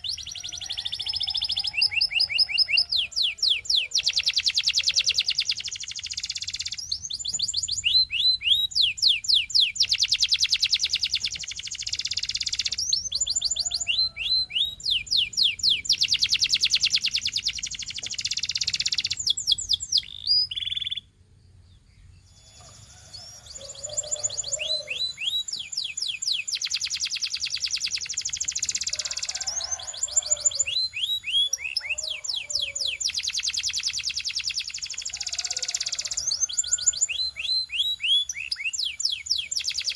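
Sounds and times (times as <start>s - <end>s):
canary singing trills: 0.0s - 21.2s, 21.8s - 39.9s.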